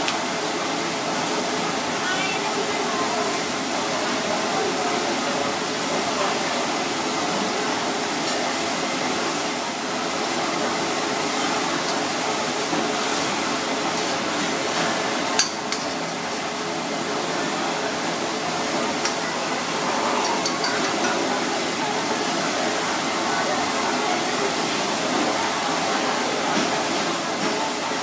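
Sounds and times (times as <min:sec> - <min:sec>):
stir-fry sizzling in a wok: 0:00.0 - 0:28.0
utensil clacking on wok: 0:20.2 - 0:21.3.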